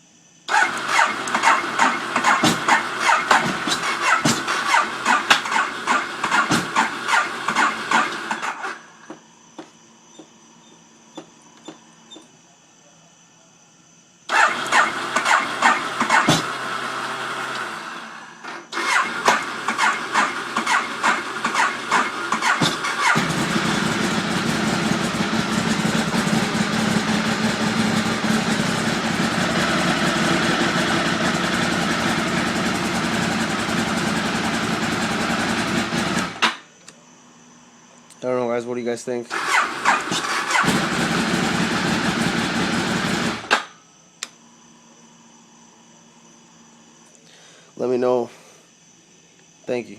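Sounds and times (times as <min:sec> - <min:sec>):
electric starter cranking: 0:00.5 - 0:08.8, 0:14.3 - 0:28.1, 0:39.3 - 0:43.7
motorcycle engine running: 0:19.4 - 0:36.4, 0:40.5 - 0:43.5.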